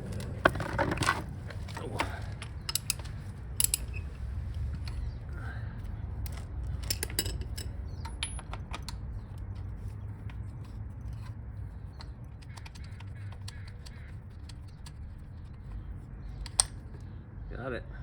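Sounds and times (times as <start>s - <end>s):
hand tools clicking on metal: 0.0s - 5.2s, 6.2s - 10.4s, 11.1s - 16.9s
steady low hum: 0.0s - 18.0s.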